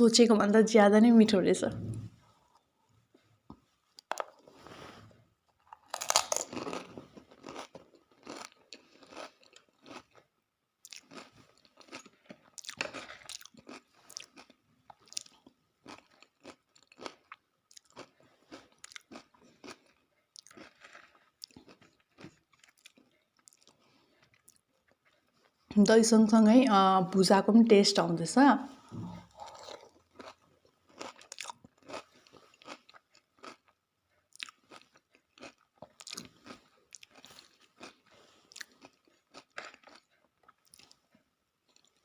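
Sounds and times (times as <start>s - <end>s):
person chewing crunchy food: 5.4s - 25.6s, 28.8s - 42.0s.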